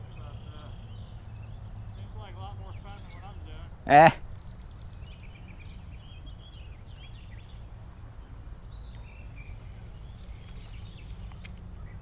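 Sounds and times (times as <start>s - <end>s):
small birds chirping: 0.0s - 12.0s
low background rumble: 4.5s - 12.0s.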